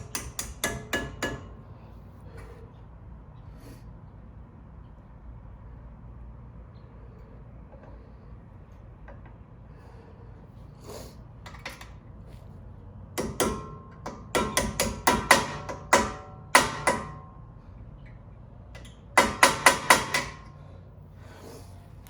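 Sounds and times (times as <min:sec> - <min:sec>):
hammer tapping metal punch: 0:00.0 - 0:01.6, 0:13.2 - 0:17.4, 0:18.8 - 0:20.5.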